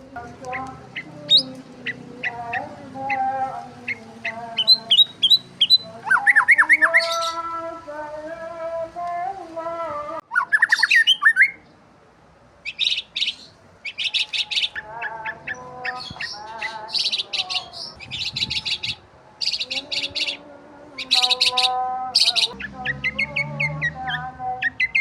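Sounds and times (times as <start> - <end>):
small birds chirping: 0.0 - 7.6, 10.3 - 11.8, 12.6 - 25.0
lower whistled bird calls: 3.9 - 7.4, 10.3 - 11.6, 12.6 - 20.4.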